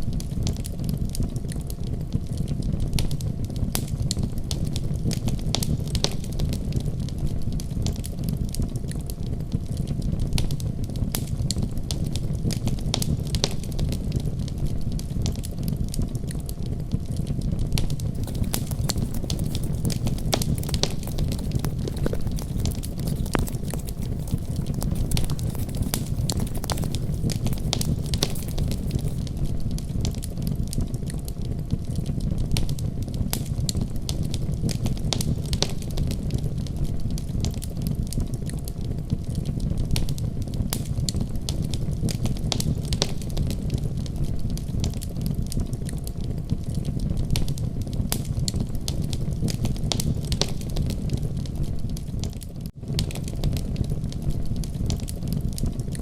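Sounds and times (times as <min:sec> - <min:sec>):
fire crackling and popping: 0:18.1 - 0:29.3.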